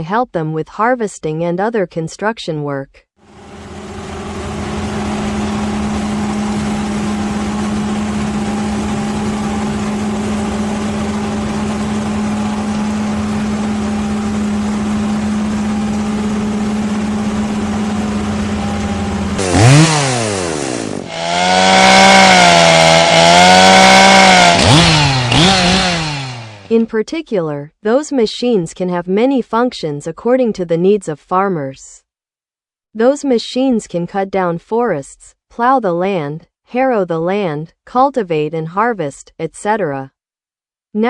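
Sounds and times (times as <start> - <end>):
chainsaw engine revving: 3.7 - 18.4, 19.1 - 26.7.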